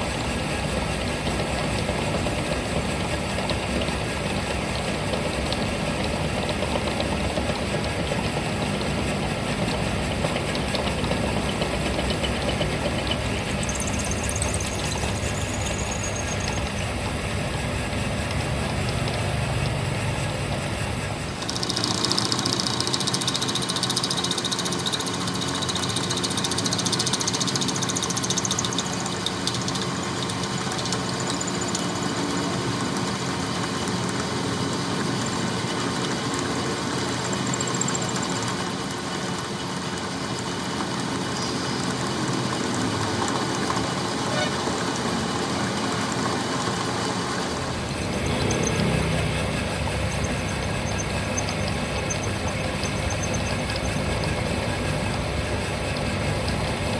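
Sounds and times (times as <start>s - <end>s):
machine running: 6.0s - 56.9s.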